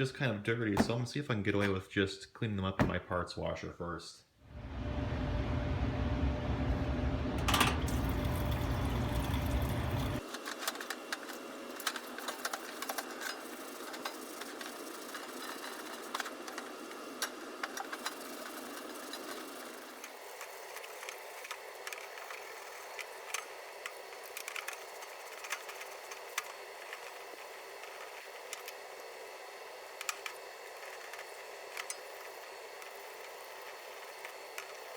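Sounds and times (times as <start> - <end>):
pump humming: 4.5 - 10.2.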